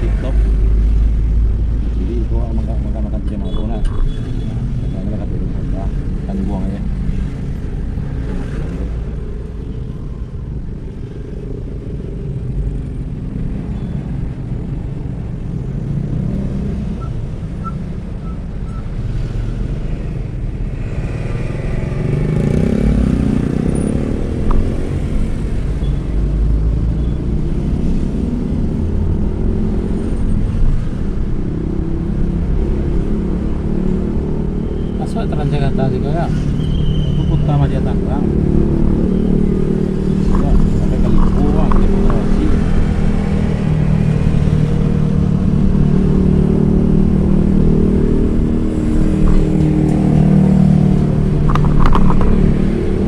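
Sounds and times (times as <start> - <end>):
traffic rumble: 0.0 - 53.0
vehicle engine passing: 20.8 - 31.0, 32.0 - 53.0.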